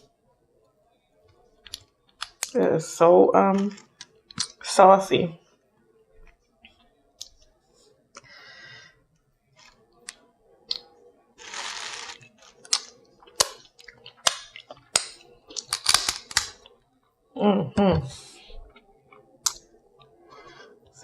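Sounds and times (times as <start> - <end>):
crab shell cracking: 10.1 - 16.7.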